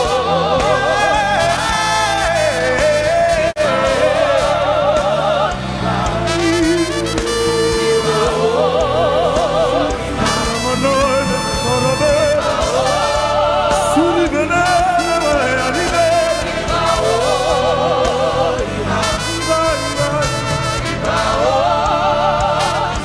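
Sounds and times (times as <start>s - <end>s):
band playing gospel music: 0.0s - 23.0s
voices singing long notes: 0.0s - 23.0s.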